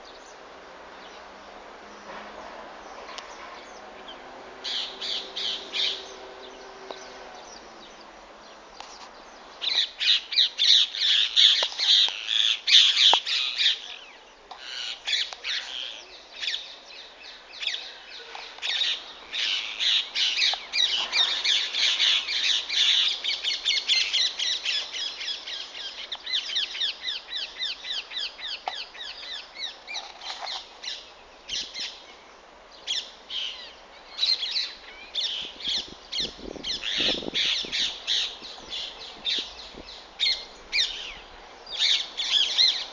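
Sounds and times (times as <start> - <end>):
parrots calling: 4.6 - 6.2, 41.8 - 42.9.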